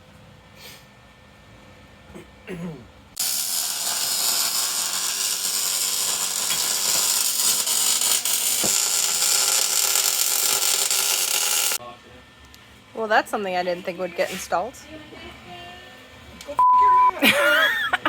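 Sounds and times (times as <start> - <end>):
power tool whirring: 3.2 - 11.8.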